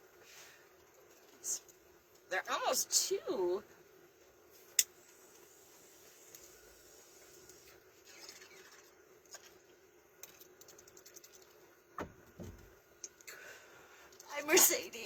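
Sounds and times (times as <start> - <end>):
faint steady hum: 0.0 - 15.0
short thump: 12.0 - 12.7.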